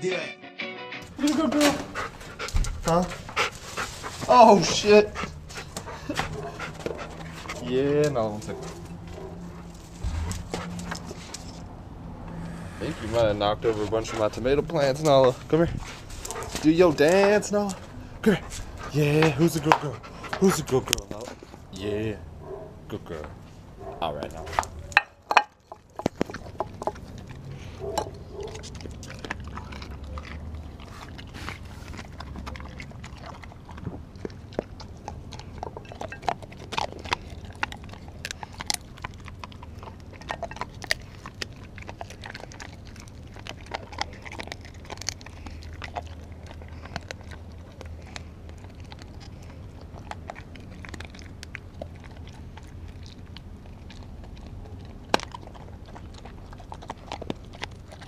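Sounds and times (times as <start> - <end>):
dog chewing wet mouth sounds: 1.6 - 22.0, 24.2 - 58.0
low steady hum: 8.5 - 14.8.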